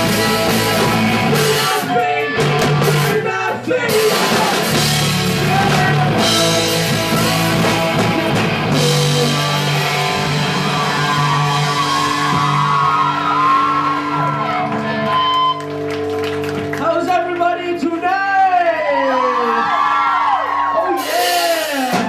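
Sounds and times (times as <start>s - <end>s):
distorted electric guitars: 0.0s - 17.3s
drum kit: 0.0s - 18.1s, 20.5s - 22.0s.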